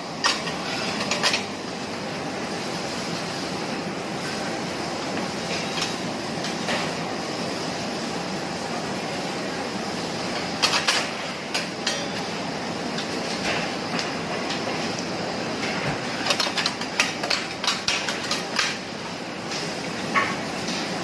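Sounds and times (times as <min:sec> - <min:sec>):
food sizzling on a griddle: 0:00.0 - 0:21.0
metal spatulas clanking: 0:11.8 - 0:12.1.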